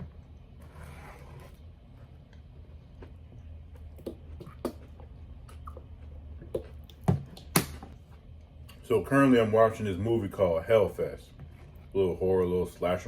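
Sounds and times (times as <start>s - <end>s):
low steady hum: 0.0s - 13.0s
chewing food: 1.9s - 8.8s.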